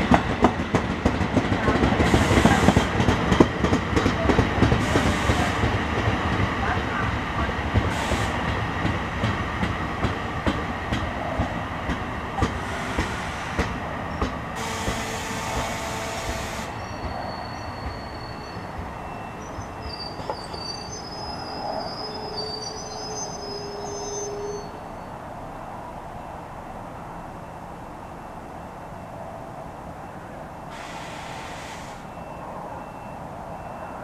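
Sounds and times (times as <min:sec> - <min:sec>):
train wheels clicking over rail joints: 0:00.0 - 0:17.2
train brakes squealing: 0:04.7 - 0:05.7, 0:07.8 - 0:08.5, 0:12.4 - 0:25.2, 0:30.7 - 0:34.0
burst of hiss: 0:30.7 - 0:32.1.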